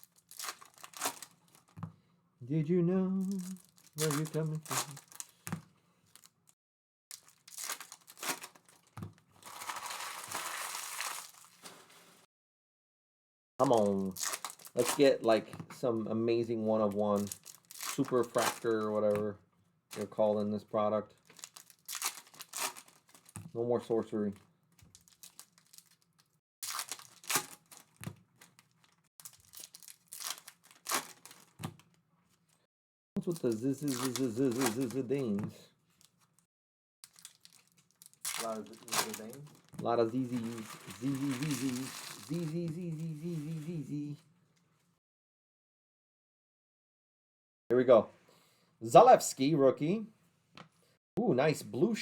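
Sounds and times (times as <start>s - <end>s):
wrappers ripping: 0.0s - 1.7s, 3.3s - 5.5s, 6.1s - 6.4s, 7.1s - 11.9s, 13.6s - 15.4s, 17.2s - 19.2s, 21.2s - 23.5s, 24.8s - 32.0s, 33.3s - 35.4s, 37.0s - 43.8s
wrappers crinkling: 0.0s - 1.8s, 3.2s - 12.3s, 13.6s - 15.4s, 16.9s - 19.2s, 21.2s - 23.6s, 24.3s - 32.0s, 33.2s - 44.1s.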